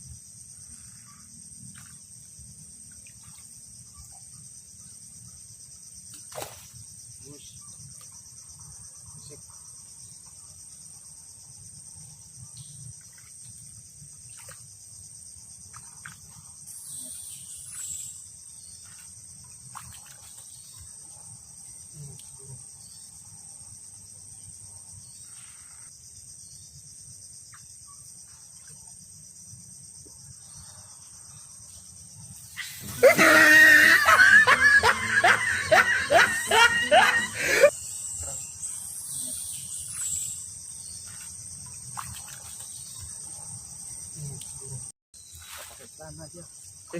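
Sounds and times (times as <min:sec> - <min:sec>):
insects chirring: 0:00.0 - 0:46.9
pitched vocal cries: 0:32.8 - 0:37.7.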